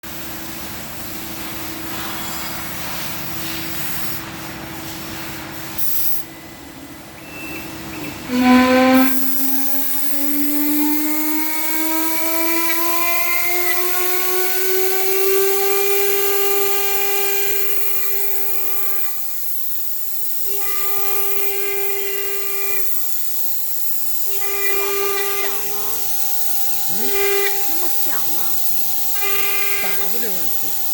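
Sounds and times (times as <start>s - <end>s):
router spindle whining: 8.3s - 18.1s, 24.0s - 30.9s.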